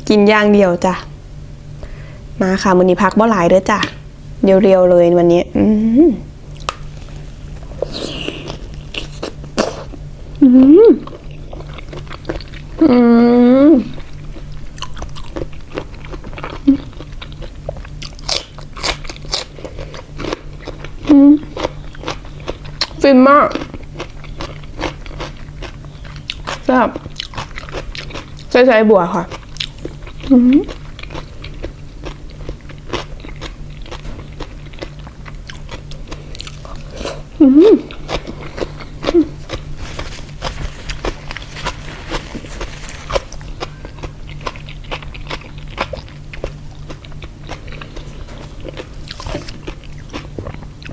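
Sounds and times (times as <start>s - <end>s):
crunchy chewing: 6.5s - 12.9s, 13.8s - 50.9s
person humming mm: 7.8s - 11.1s, 12.8s - 13.9s.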